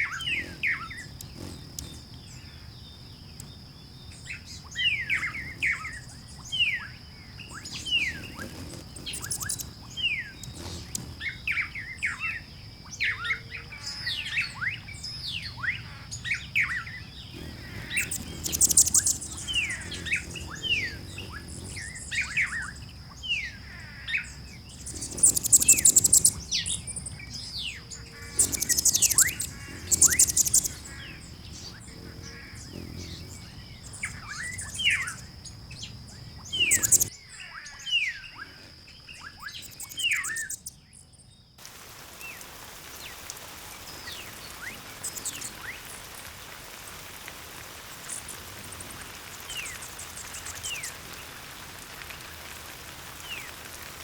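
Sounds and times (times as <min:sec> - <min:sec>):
high buzzy bird trills: 0:00.0 - 0:40.8, 0:44.0 - 0:45.9
birds chirping: 0:00.0 - 0:41.0, 0:43.8 - 0:45.9.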